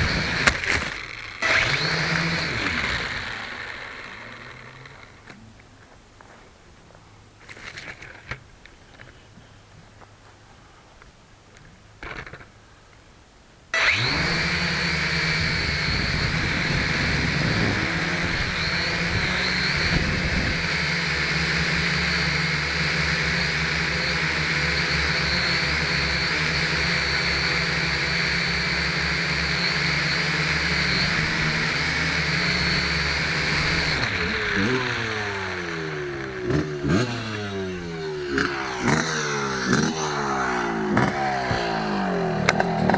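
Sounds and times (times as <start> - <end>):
drone motors whining: 0.0 - 5.4, 13.8 - 42.9
propeller rushing rumble: 30.4 - 42.9.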